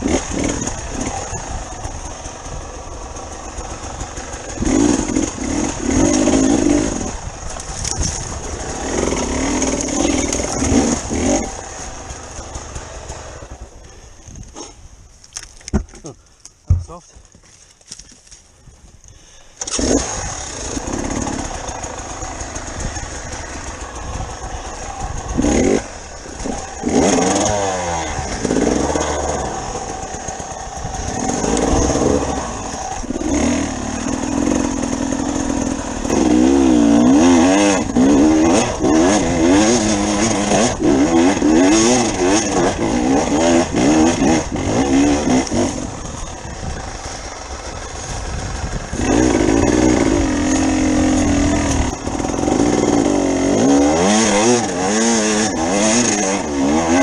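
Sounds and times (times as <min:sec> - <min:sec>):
dirt bike engine revving: 0:00.0 - 0:14.8, 0:19.3 - 0:57.0.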